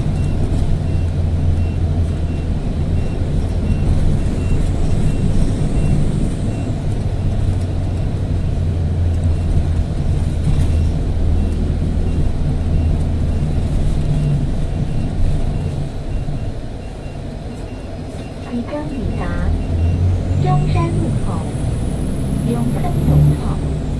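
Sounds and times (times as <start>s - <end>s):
bus engine drone: 0.0s - 23.9s
road noise: 0.0s - 23.9s
faint regular beeping: 14.2s - 21.3s.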